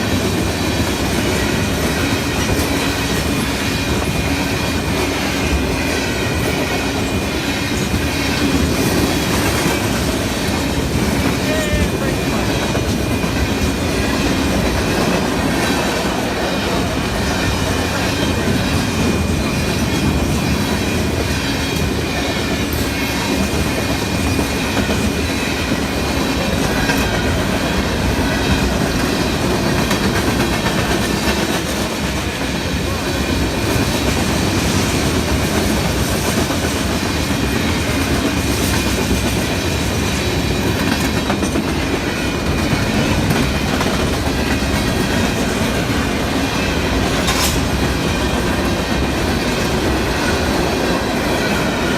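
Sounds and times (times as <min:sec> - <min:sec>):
train cars rolling on rails: 0:00.0 - 0:51.9.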